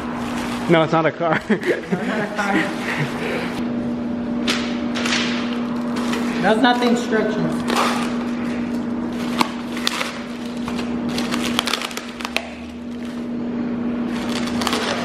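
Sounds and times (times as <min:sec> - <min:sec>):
steady background hum: 0:00.0 - 0:15.0
packaging rustling: 0:07.5 - 0:13.3, 0:14.1 - 0:15.0.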